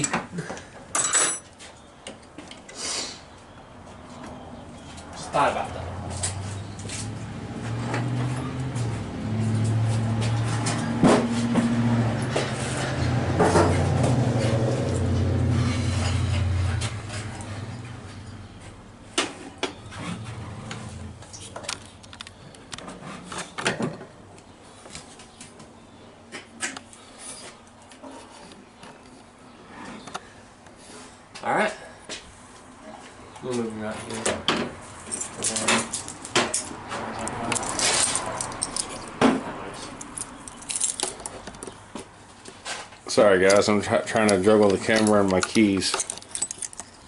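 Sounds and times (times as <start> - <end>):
keys jangling: 35.1 - 39.2, 40.0 - 41.4, 44.9 - 47.0.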